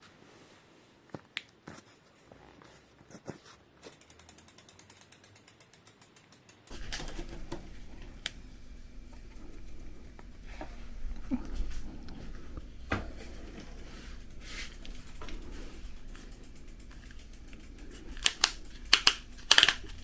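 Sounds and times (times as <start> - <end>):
bicycle freewheel clicking: 4.0 - 20.0
handling noise with knocks: 6.7 - 20.0.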